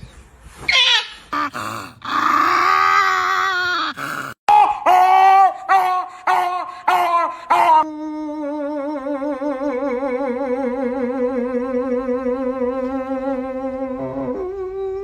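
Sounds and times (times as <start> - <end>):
dog howling: 1.4 - 4.4.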